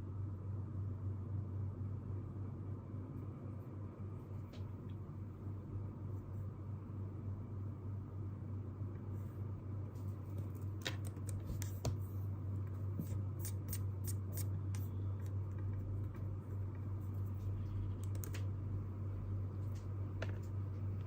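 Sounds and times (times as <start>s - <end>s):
steady low hum: 0.0s - 21.0s
light clicks and taps at desk: 10.3s - 12.0s, 17.9s - 18.5s.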